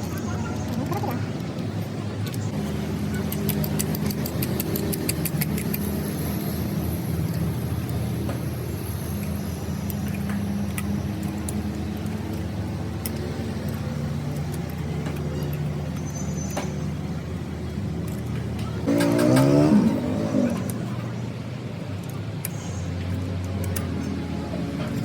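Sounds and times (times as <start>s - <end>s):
sharp metallic ticks: 1.4s - 16.6s.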